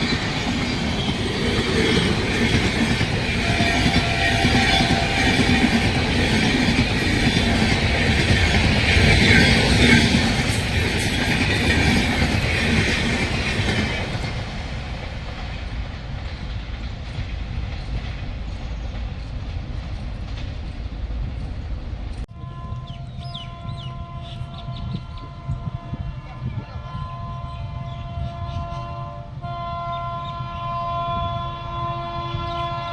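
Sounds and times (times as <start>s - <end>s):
high ringing from train wheels: 0.0s - 16.8s
train wheels clattering over rail joints: 0.0s - 22.2s.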